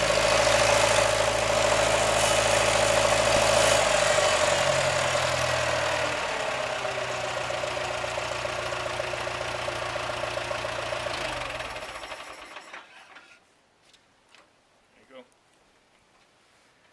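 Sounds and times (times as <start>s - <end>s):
tractor engine running: 0.0s - 12.9s.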